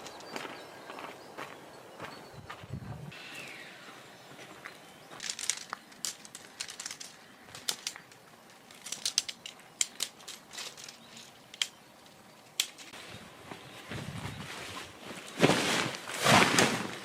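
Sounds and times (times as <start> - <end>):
crinkling rustles: 5.0 - 17.0.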